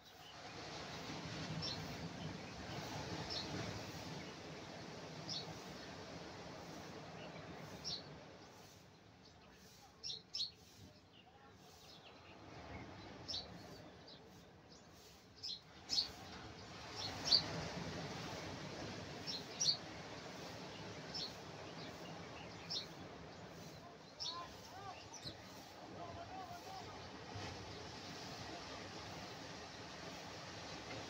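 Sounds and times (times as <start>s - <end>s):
surf breaking on beach: 0.3s - 8.3s, 15.7s - 31.0s.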